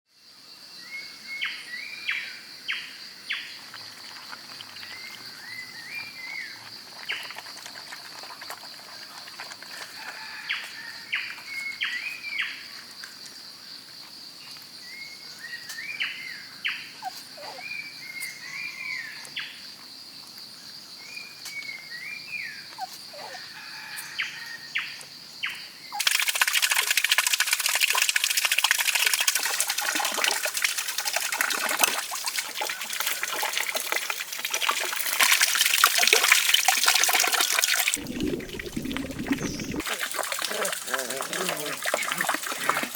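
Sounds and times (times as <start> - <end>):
rush of running water: 26.0 - 42.9
birds chirping: 37.8 - 39.8.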